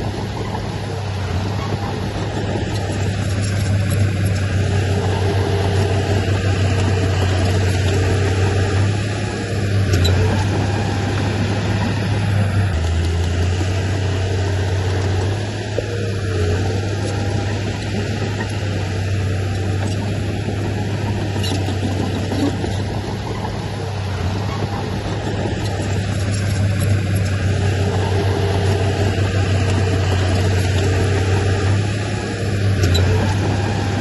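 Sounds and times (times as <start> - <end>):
heavy diesel machinery running: 0.0 - 34.0.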